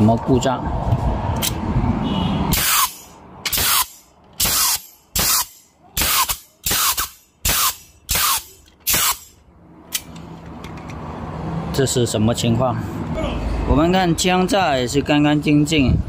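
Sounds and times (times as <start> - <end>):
pneumatic nailer firing: 2.5 - 9.4.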